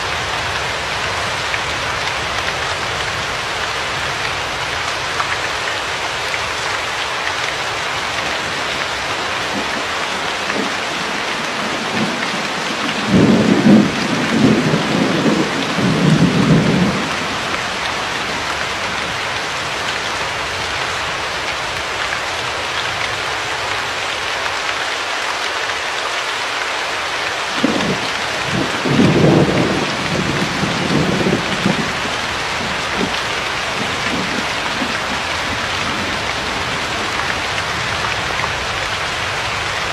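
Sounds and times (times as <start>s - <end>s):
steady rain: 0.0s - 39.9s
thunder rumbling: 8.0s - 19.2s, 27.6s - 39.9s.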